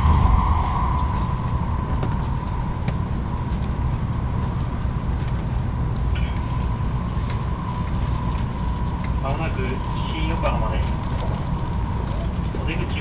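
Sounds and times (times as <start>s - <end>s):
steady whine: 0.0s - 13.0s
train rumble inside cabin: 0.0s - 13.0s.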